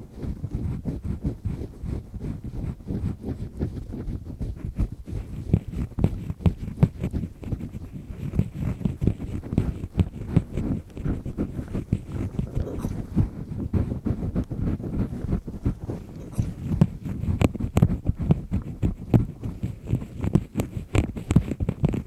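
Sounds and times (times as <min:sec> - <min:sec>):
ear pick scraping in ear: 0:04.7 - 0:22.0.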